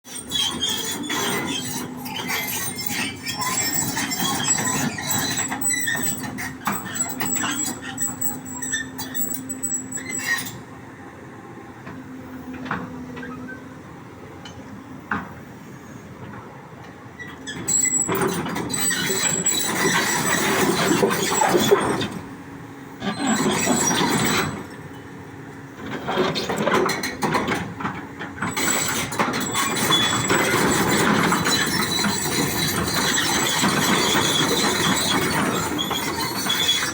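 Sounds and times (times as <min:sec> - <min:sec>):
metallic squealing: 0:00.1 - 0:10.6, 0:17.5 - 0:22.1, 0:23.0 - 0:24.7, 0:28.5 - 0:36.9
excavator engine running: 0:00.2 - 0:36.9.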